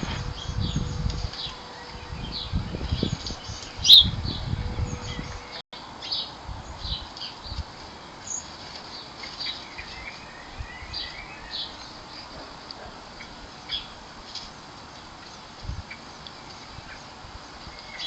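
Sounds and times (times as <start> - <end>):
bird warbling: 0.0 - 4.2
small birds chirping: 0.0 - 14.0, 14.9 - 18.0.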